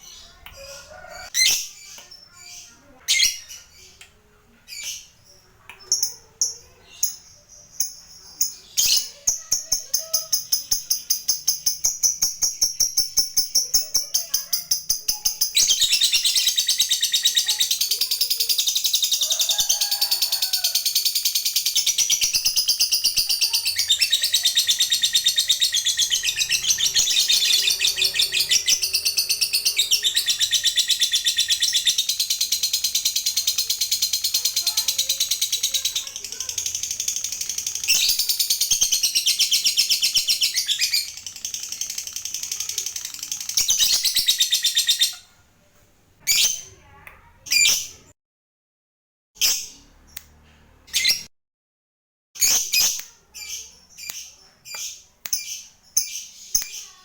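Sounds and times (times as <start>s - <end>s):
lovebird chirping: 4.7s - 45.3s
lovebird rattling trill: 18.9s - 45.0s.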